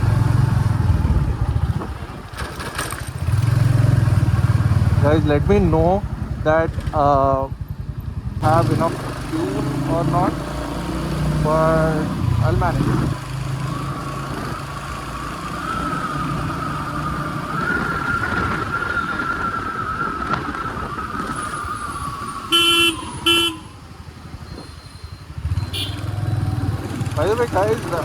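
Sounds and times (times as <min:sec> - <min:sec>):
motorcycle engine and road noise: 0:00.0 - 0:28.0
vehicle horn toots: 0:22.5 - 0:23.8, 0:25.6 - 0:26.3.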